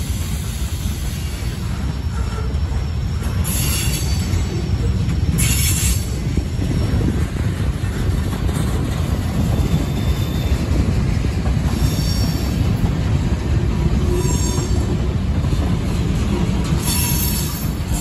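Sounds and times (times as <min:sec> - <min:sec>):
freight cars rumbling on rails: 0:00.0 - 0:18.0
wheel squeal: 0:00.2 - 0:07.2, 0:09.4 - 0:10.8, 0:11.7 - 0:12.7, 0:14.0 - 0:15.0, 0:16.3 - 0:18.0.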